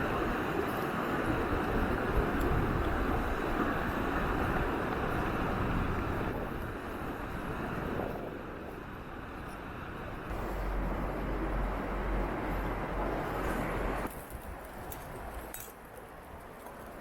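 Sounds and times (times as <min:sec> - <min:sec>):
mountain stream rushing: 0:00.0 - 0:17.0
low rumble: 0:10.2 - 0:14.1.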